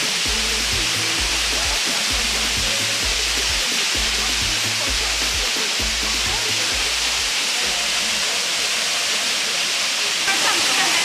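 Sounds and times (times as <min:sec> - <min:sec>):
background music with bass line: 0:00.0 - 0:08.2
waterfall rushing: 0:00.0 - 0:11.0.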